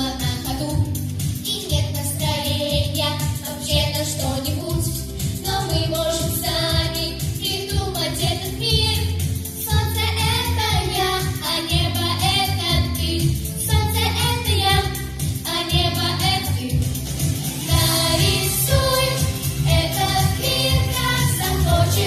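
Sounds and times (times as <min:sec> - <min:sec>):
instrumental music with bass beat: 0:00.0 - 0:22.0
children singing: 0:17.7 - 0:22.0.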